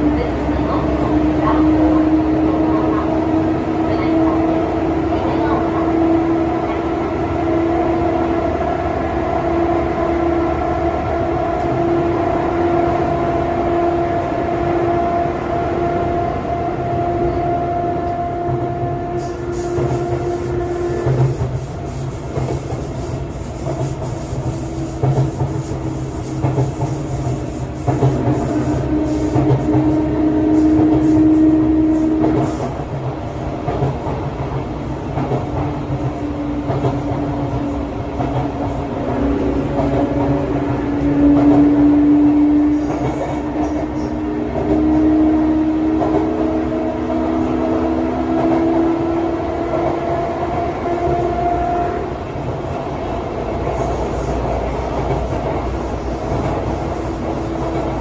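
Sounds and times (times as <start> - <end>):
electric train whine: 0.0 - 33.7, 34.3 - 58.0
train wheels rumbling: 0.0 - 58.0
hiss: 19.2 - 29.5, 55.0 - 58.0.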